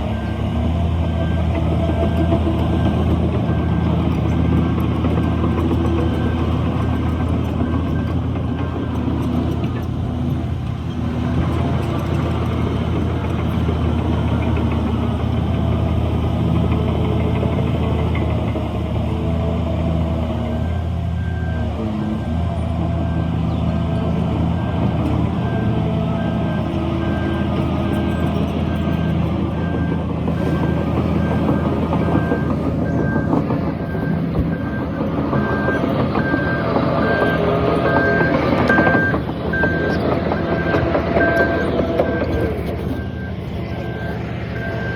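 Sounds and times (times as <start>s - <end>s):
reversing alarm beeping: 0.0s - 9.9s, 20.4s - 44.9s
heavy diesel engine running: 0.0s - 44.9s
crawler tracks clanking: 23.8s - 44.9s.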